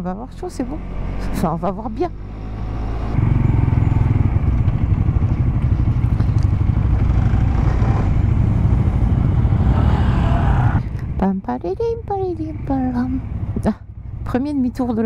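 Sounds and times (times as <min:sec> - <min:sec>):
motorcycle engine rumbling: 0:00.0 - 0:15.0
wind rush: 0:04.6 - 0:10.9.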